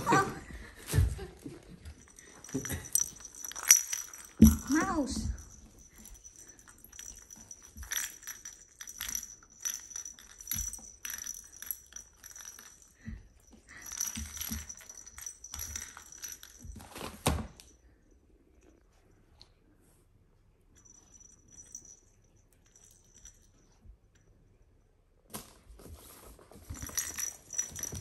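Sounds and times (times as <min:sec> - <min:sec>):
cat toy jingling and rattling: 0:01.6 - 0:17.6, 0:20.8 - 0:23.7, 0:26.6 - 0:28.0.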